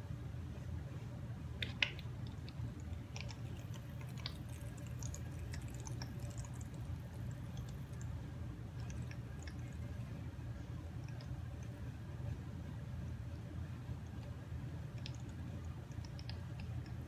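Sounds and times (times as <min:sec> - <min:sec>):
low steady hum: 0:00.0 - 0:17.0
wet squishing of paint: 0:01.6 - 0:10.2, 0:14.1 - 0:17.0
small clicks: 0:15.0 - 0:17.0.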